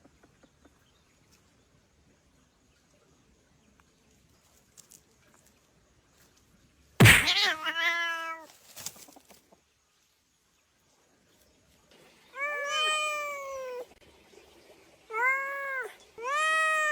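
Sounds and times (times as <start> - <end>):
cat meowing: 7.0 - 8.5, 12.4 - 13.9, 15.1 - 16.9.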